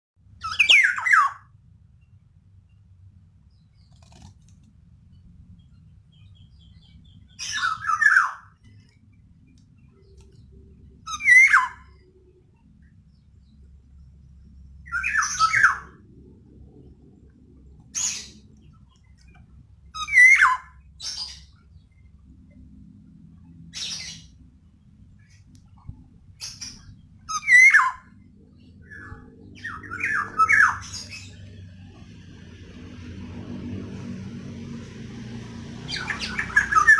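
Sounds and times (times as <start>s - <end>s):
oriole harsh squawking calls: 0.4s - 1.5s, 7.4s - 8.6s, 11.1s - 12.0s, 14.9s - 16.0s, 17.9s - 18.5s, 20.0s - 21.5s, 26.4s - 28.1s, 28.8s - 31.6s, 35.9s - 36.9s.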